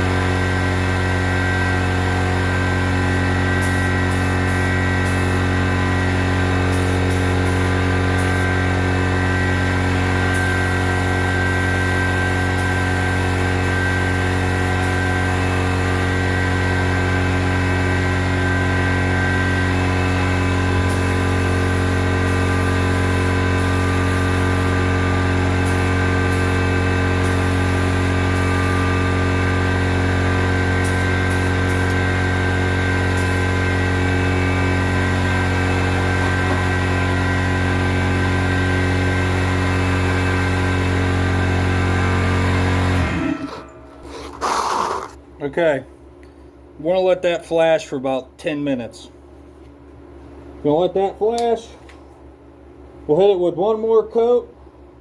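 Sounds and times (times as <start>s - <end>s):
motor hum: 0.0s - 45.3s
spray gun hissing: 3.5s - 16.1s, 20.6s - 30.1s.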